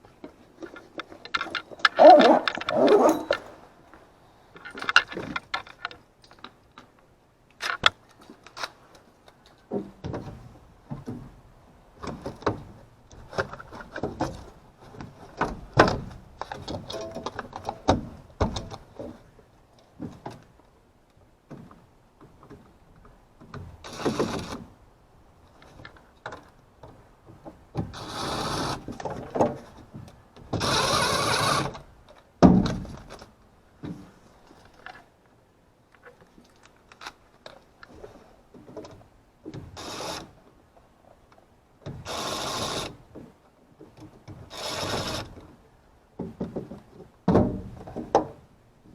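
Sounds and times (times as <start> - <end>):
tools clattering: 0.6 - 3.7, 4.6 - 6.6, 16.5 - 17.8.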